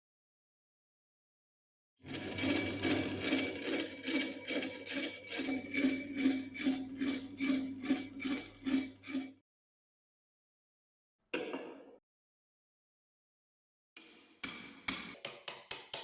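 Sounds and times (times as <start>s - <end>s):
low hum: 2.0s - 9.2s.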